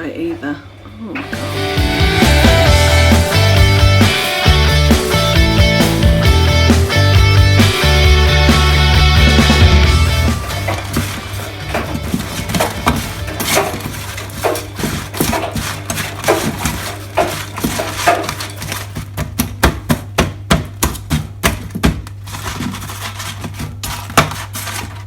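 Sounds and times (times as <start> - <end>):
knife chopping on chopping board: 11.0 - 24.8.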